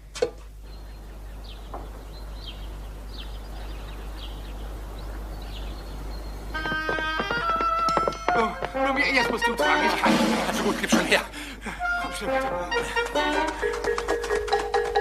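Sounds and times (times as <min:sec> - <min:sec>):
steady background hiss: 0:00.0 - 0:14.9
small bird chirping: 0:00.5 - 0:07.8.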